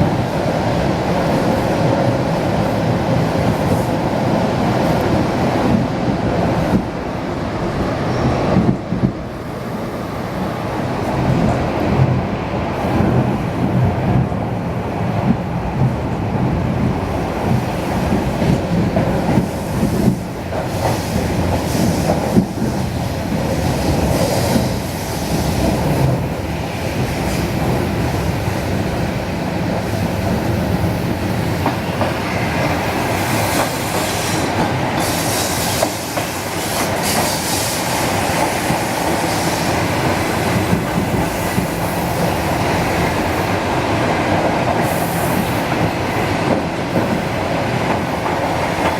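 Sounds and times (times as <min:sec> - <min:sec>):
train wheels on rails: 0:00.0 - 0:48.9.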